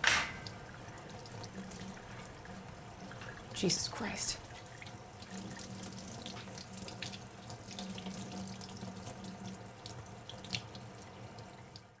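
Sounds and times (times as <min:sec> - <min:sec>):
dishes knocking: 0:00.0 - 0:00.6
tap running into sink: 0:00.0 - 0:00.6.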